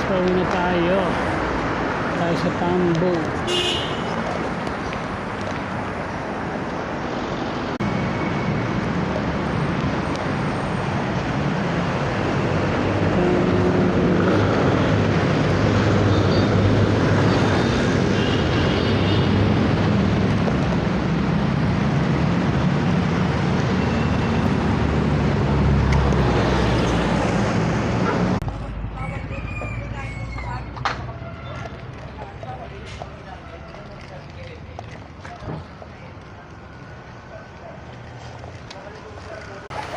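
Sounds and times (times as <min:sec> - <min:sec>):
passing vehicle engines: 0:00.0 - 0:39.9
road traffic noise: 0:00.0 - 0:39.9.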